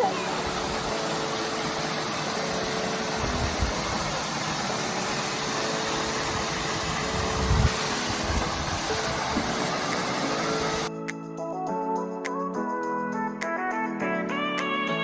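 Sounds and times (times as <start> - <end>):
waterfall rushing: 0.0 - 10.9.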